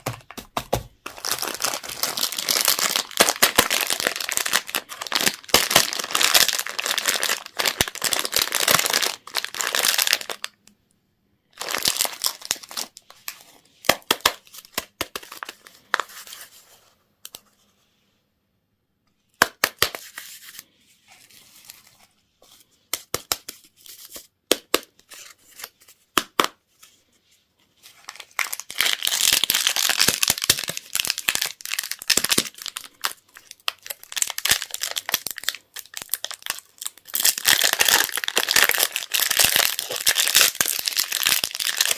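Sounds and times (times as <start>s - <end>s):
packaging crinkling and tearing: 0.0s - 10.6s, 11.6s - 16.4s, 28.0s - 41.9s.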